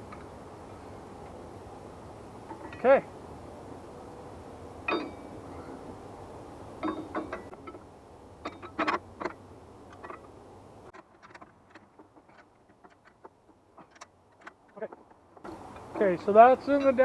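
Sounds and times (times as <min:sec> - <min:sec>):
metallic clinks of tools: 0:16.7 - 0:17.0.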